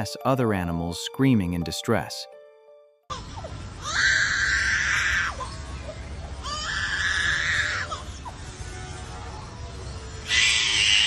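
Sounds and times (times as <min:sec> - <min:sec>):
lyrebird mimicking screams: 0:06.4 - 0:08.3, 0:10.2 - 0:11.0.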